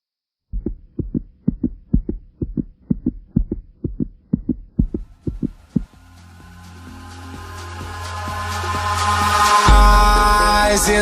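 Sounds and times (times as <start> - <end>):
heartbeat thumps: 0.5 - 6.0
rising hiss: 6.1 - 11.0.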